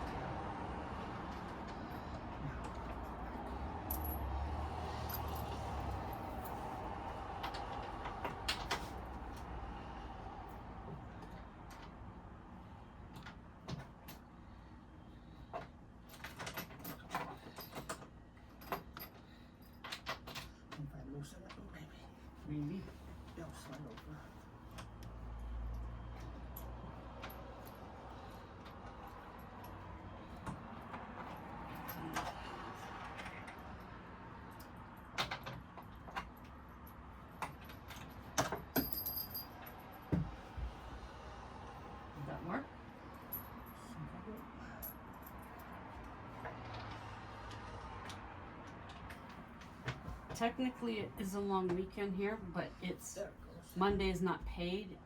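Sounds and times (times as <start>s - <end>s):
furniture parts clicking and knocking: 34.8s - 40.8s.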